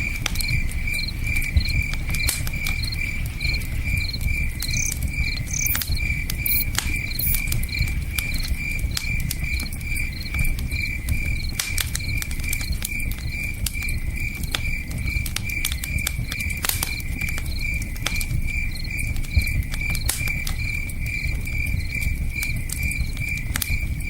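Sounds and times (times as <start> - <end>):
campfire crackling: 0.0 - 24.0
crickets chirping: 0.0 - 24.0.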